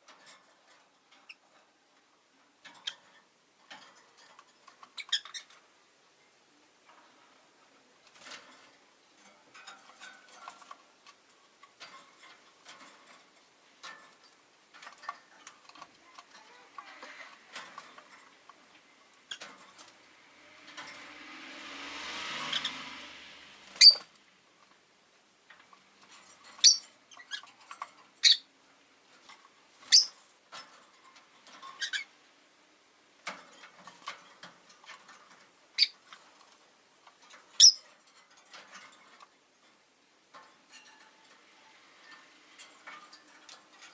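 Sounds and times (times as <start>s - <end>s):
passing car: 19.8s - 24.5s
lovebirds chirping: 23.7s - 24.1s, 26.6s - 27.5s, 29.8s - 30.2s.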